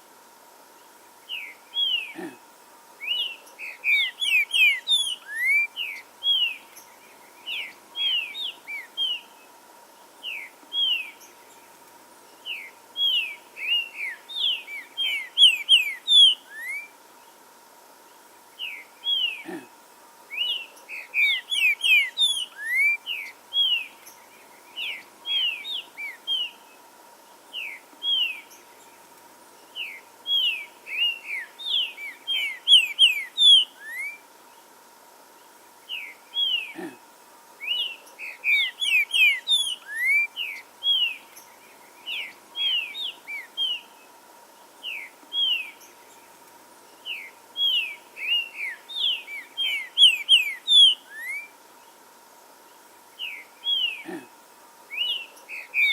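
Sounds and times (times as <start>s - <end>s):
bird singing whistled slurs: 1.3s - 2.2s, 3.0s - 9.3s, 10.2s - 11.6s, 12.4s - 17.0s, 20.3s - 26.7s, 27.5s - 28.6s, 29.7s - 34.2s, 35.9s - 36.8s, 37.6s - 43.9s, 44.8s - 46.2s, 47.0s - 51.6s, 53.2s - 54.0s, 54.9s - 55.9s.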